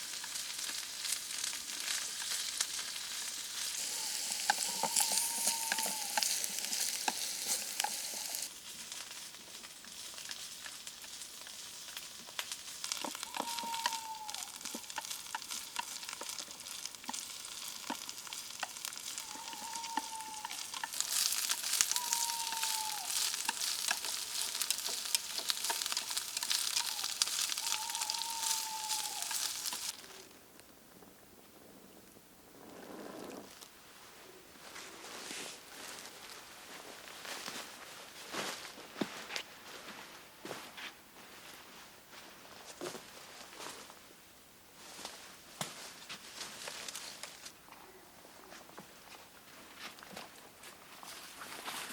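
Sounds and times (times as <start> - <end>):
food sizzling over campfire: 0.0 - 30.4.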